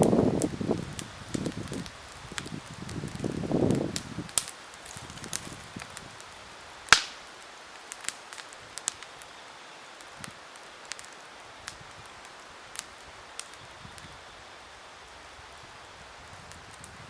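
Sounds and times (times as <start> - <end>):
campfire crackling: 0.0 - 17.0
sharp loud pop: 6.9 - 7.2.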